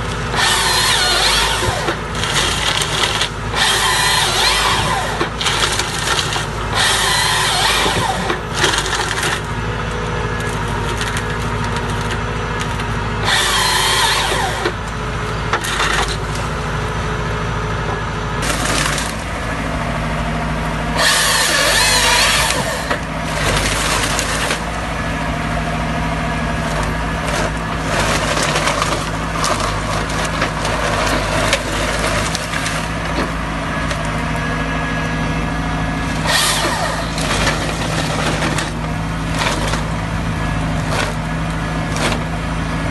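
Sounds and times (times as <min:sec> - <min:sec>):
chainsaw cutting wood: 0:00.0 - 0:09.5, 0:13.2 - 0:14.8, 0:18.4 - 0:19.3, 0:21.0 - 0:24.8, 0:26.7 - 0:33.3, 0:36.1 - 0:39.9, 0:41.9 - 0:42.3.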